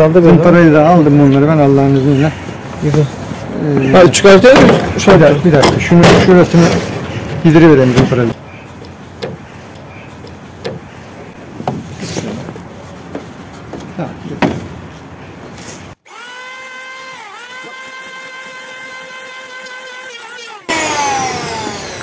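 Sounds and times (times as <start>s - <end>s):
electric sander whining: 16.0s - 22.0s.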